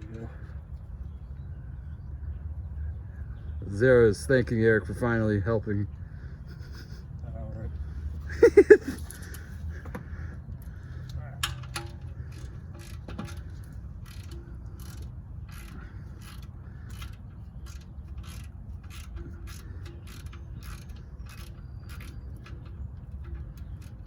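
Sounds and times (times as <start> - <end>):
socket ratchet clicking: 11.6 - 24.0.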